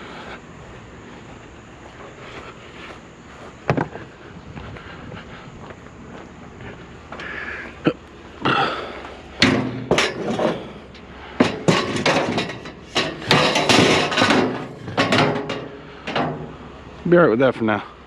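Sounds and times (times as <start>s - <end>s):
scrap knocking and clanking: 9.4s - 16.8s.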